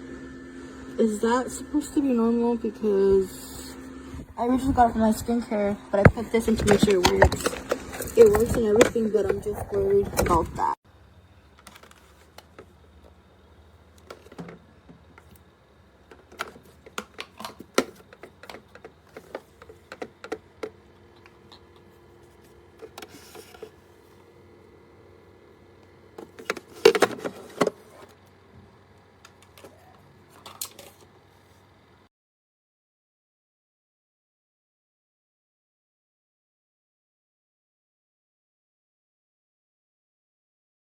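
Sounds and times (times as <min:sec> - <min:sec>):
mini fridge electrical hum: 0:00.0 - 0:32.1
handling clicks and rattles: 0:11.5 - 0:13.2, 0:13.9 - 0:15.4, 0:16.0 - 0:23.8.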